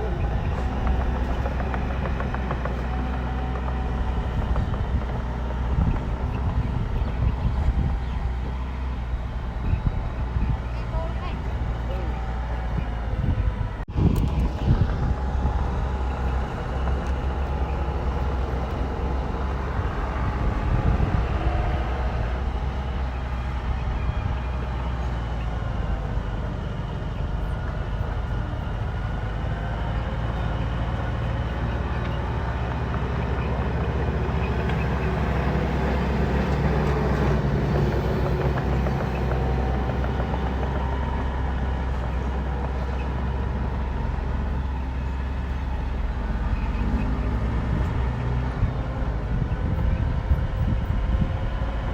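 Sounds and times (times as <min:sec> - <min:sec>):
bulldozer diesel engine rumbling: 0:00.0 - 0:51.9.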